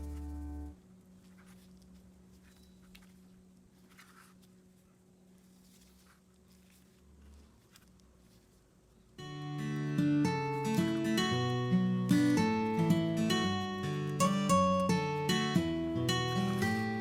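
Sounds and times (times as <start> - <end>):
background music: 0.0 - 0.8, 9.3 - 17.0
low hum: 0.0 - 17.0.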